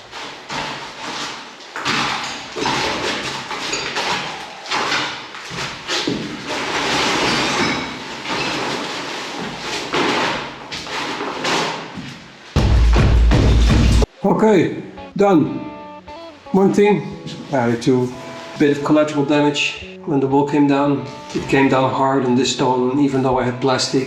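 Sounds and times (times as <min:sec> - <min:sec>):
masonry wall being broken: 0:00.1 - 0:12.0.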